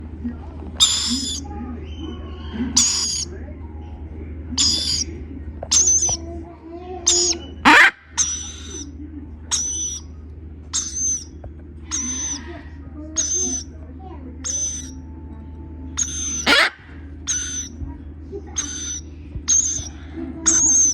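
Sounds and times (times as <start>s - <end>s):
baby birds screeching: 0.8s - 3.3s, 4.6s - 5.1s, 5.7s - 6.2s, 7.0s - 8.9s, 9.5s - 10.1s, 10.8s - 12.5s, 13.2s - 13.7s, 14.4s - 15.0s, 16.0s - 17.8s, 18.6s - 20.9s.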